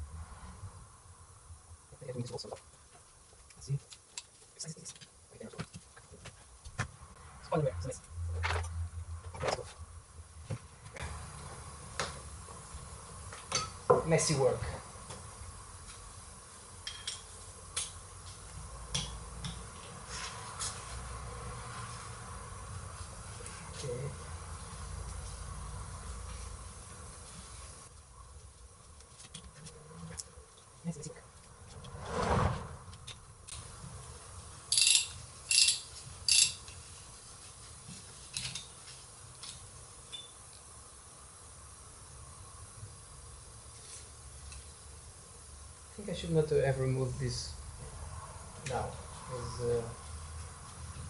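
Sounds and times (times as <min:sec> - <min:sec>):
steady hiss: 0:00.0 - 0:08.1, 0:08.7 - 0:51.0
metal parts clicking and clinking: 0:34.7 - 0:36.8.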